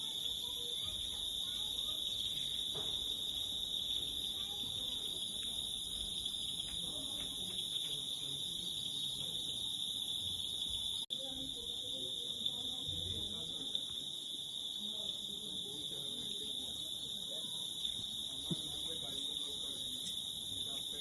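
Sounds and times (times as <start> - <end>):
night insects chorus: 0.0 - 21.0.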